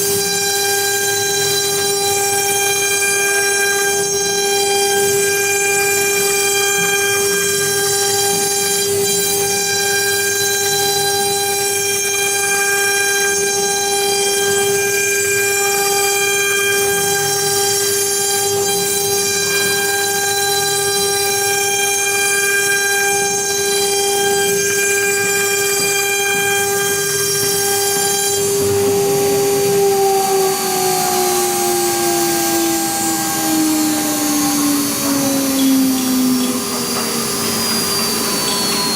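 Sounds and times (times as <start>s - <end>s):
cutting machine motor whine: 13.3s - 38.9s.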